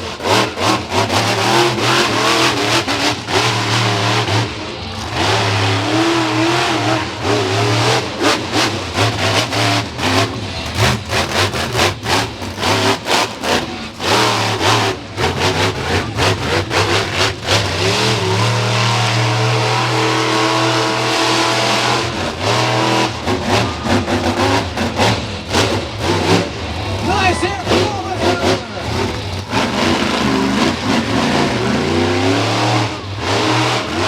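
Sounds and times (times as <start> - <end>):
truck engine revving: 0.0 - 34.0.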